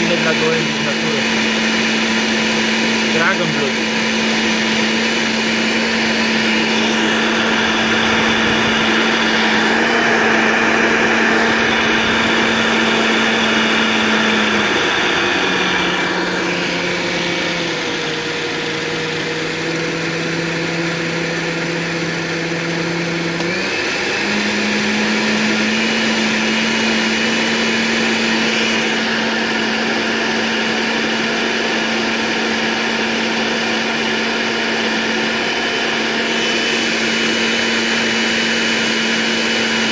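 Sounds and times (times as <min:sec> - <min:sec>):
small electric motor running: 0:06.1 - 0:18.9.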